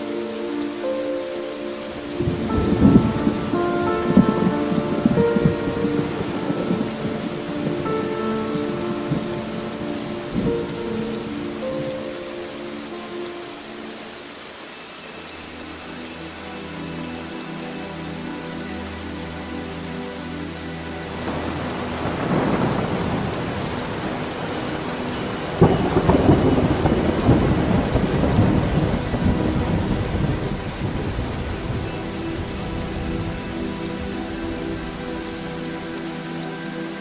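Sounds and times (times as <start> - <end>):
heavy rain falling: 0.0 - 37.0
thunder rumbling: 1.9 - 12.6, 21.1 - 35.9.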